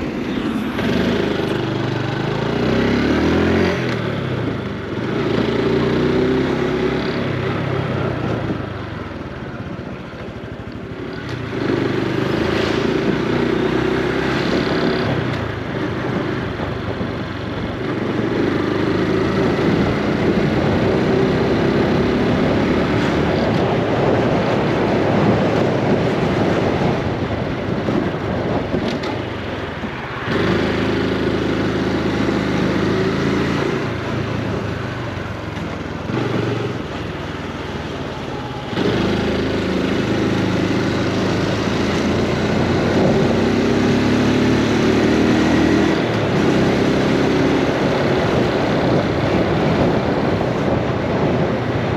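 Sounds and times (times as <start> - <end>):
motorcycle engine running: 0.0 - 51.9
wind noise: 0.0 - 51.9.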